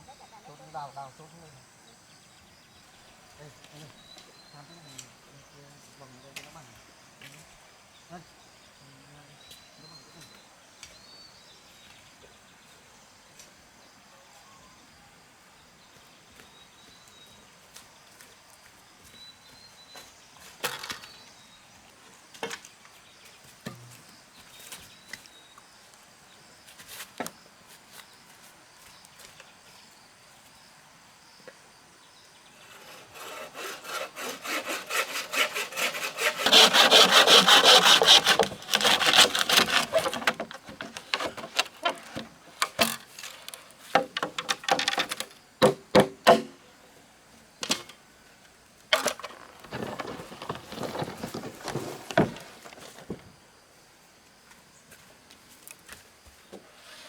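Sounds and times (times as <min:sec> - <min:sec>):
hand saw cutting wood: 0:32.6 - 0:45.2, 0:49.0 - 0:53.1.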